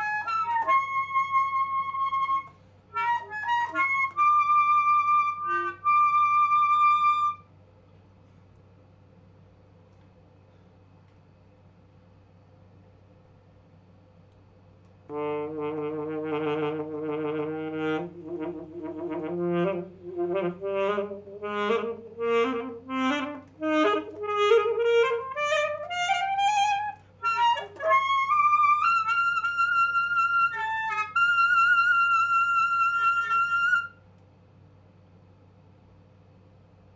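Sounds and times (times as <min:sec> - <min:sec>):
alto saxophone playing: 0:00.0 - 0:07.5, 0:15.1 - 0:34.0.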